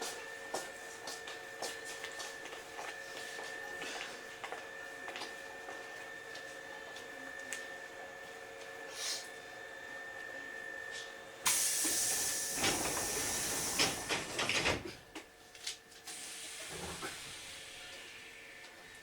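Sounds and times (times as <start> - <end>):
pneumatic door air hiss: 11.5 - 14.8, 16.1 - 18.6.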